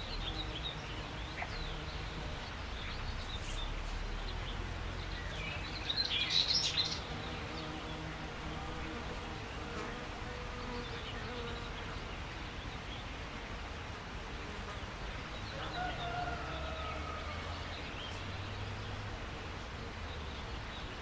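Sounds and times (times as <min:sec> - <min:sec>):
insect buzzing: 0:00.0 - 0:12.4
steady background hiss: 0:00.0 - 0:21.0.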